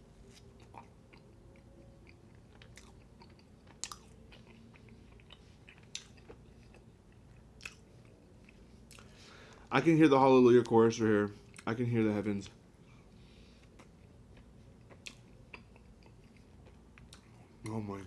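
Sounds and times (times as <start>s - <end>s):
faint low hum: 0.0s - 18.0s
person chewing food: 0.2s - 9.6s, 12.8s - 17.7s.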